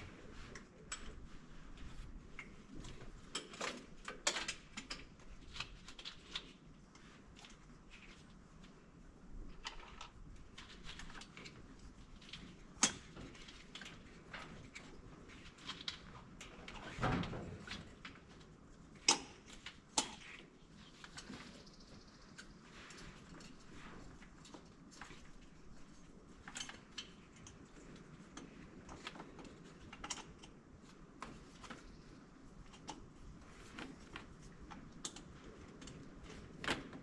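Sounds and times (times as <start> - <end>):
tools clicking and knocking: 3.3 - 6.5, 19.0 - 20.4.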